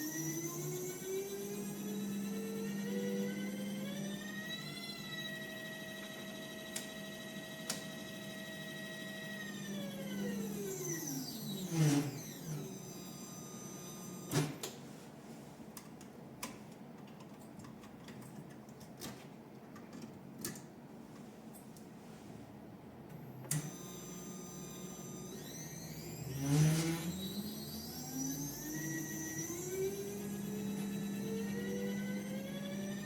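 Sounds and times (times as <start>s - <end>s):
stepper motor whining: 0.0s - 14.6s, 23.2s - 33.0s.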